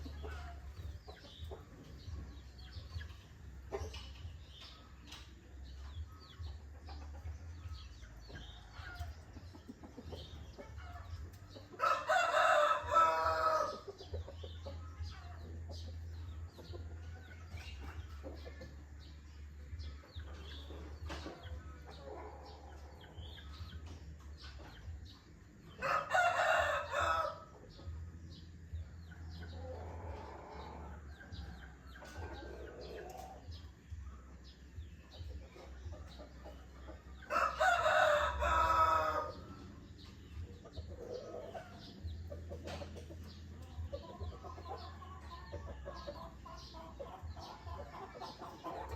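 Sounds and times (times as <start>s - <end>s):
small birds chirping: 0.0s - 48.9s
rooster crowing: 11.8s - 13.8s, 25.8s - 27.5s, 37.3s - 39.4s.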